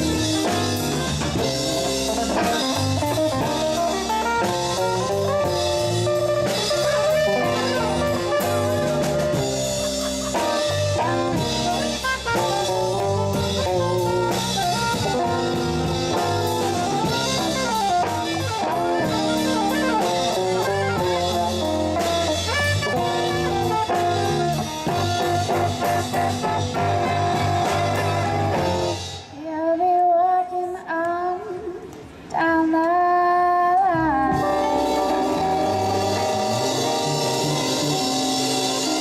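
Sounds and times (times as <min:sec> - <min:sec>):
electric bass: 0:00.0 - 0:29.3, 0:33.9 - 0:39.0
electric guitars: 0:00.0 - 0:29.4, 0:33.8 - 0:39.0
drum kit with cymbals: 0:00.0 - 0:29.6, 0:34.1 - 0:39.0
saxophone: 0:00.0 - 0:29.6, 0:33.8 - 0:39.0.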